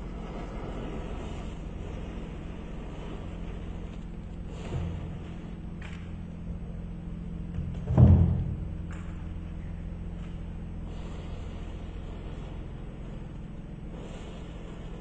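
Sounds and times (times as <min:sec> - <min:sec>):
steady low hum: 0:00.0 - 0:15.0
loud dull thud: 0:07.9 - 0:08.7.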